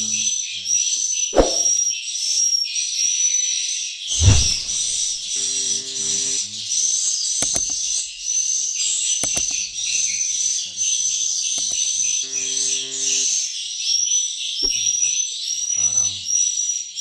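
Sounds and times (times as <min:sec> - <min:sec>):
sharp clicks: 0:07.3 - 0:08.2, 0:08.8 - 0:10.2, 0:11.5 - 0:13.3
swiftlets twittering: 0:15.8 - 0:16.3.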